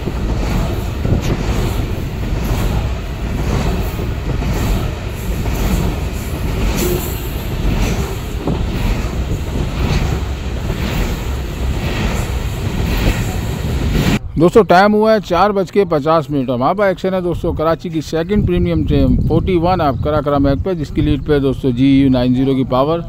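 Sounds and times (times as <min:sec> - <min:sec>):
rail clacks: 0:00.0 - 0:14.2
freight train wheels rumbling: 0:00.0 - 0:14.4.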